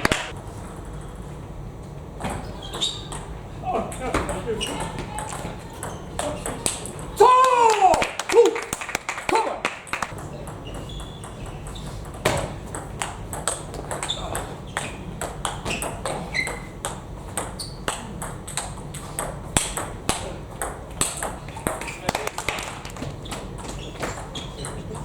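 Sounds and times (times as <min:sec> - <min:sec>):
table tennis balls ticking: 0:00.0 - 0:01.3, 0:09.9 - 0:25.0.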